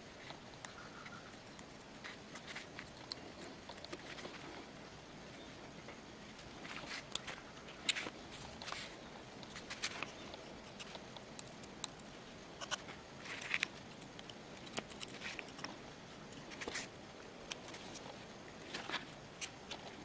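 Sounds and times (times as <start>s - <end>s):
scratchy rustles: 6.3s - 11.1s.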